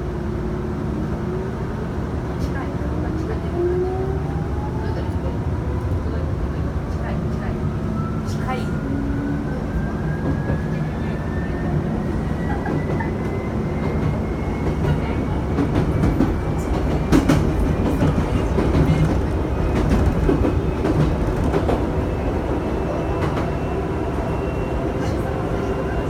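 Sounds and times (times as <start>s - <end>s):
train wheels rumbling on rail: 0.0s - 26.0s
clickety-clack of rail joints: 10.1s - 10.9s, 12.2s - 22.2s, 23.1s - 23.6s.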